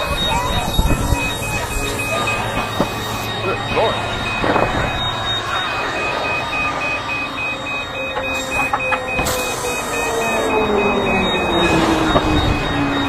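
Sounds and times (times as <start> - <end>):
engine whine falling in pitch: 0.0 - 13.0
rapid electronic beeping: 0.0 - 13.0.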